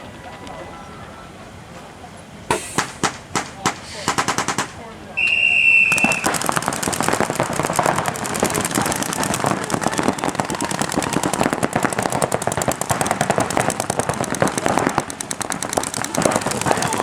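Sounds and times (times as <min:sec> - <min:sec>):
paintball markers firing rapidly: 0:02.5 - 0:04.8, 0:05.9 - 0:17.0.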